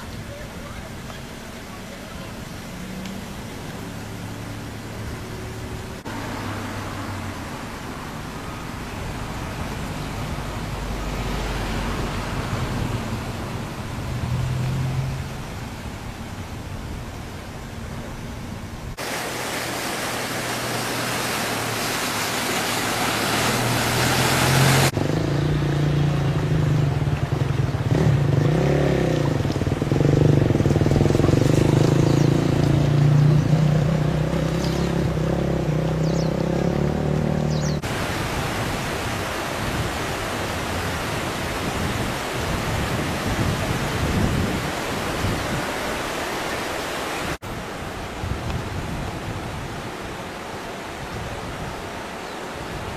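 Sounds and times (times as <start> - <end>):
engine hum: 0.0 - 38.8.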